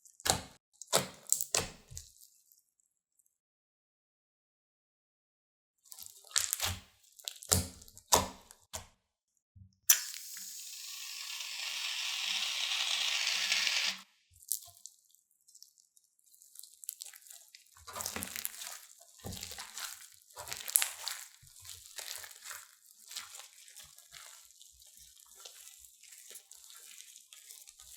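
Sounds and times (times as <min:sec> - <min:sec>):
crunchy slime crackling: 0:16.9 - 0:24.4.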